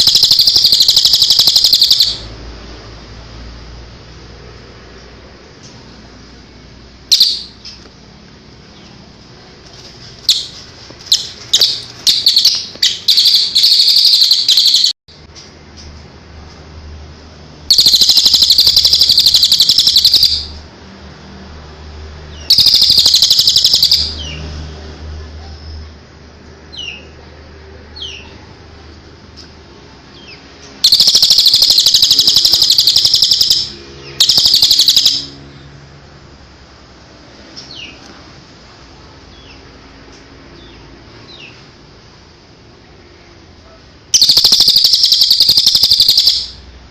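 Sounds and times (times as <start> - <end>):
songbird trilling: 0.0 - 2.3, 7.1 - 7.8, 10.3 - 14.9, 17.7 - 20.5, 22.4 - 24.4, 30.8 - 35.4, 44.2 - 46.6.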